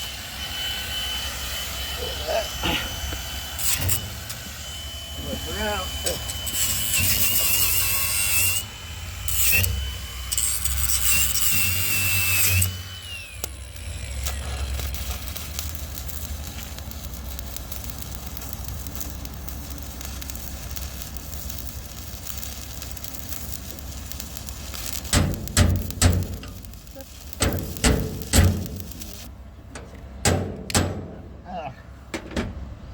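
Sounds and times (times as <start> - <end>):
welding arc crackling: 0.0 - 29.3.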